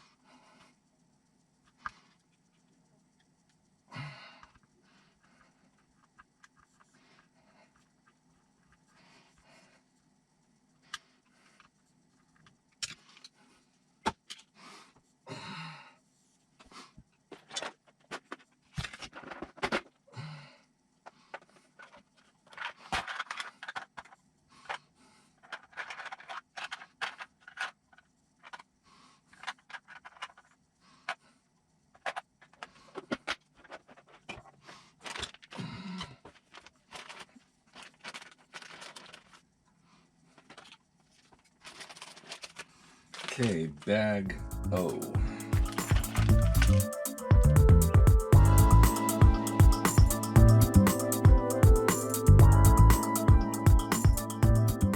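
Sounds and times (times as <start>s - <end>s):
small parts and tools handled: 4.5s - 8.9s, 11.6s - 13.4s, 17.3s - 19.9s, 21.0s - 24.8s, 25.4s - 31.2s, 31.9s - 35.6s, 36.2s - 43.6s.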